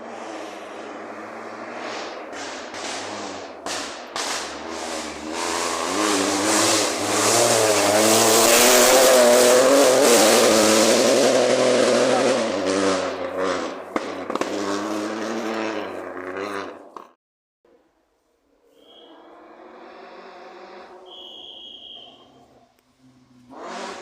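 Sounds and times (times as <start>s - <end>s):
rally car engine revving: 0.0s - 17.1s, 19.0s - 24.0s.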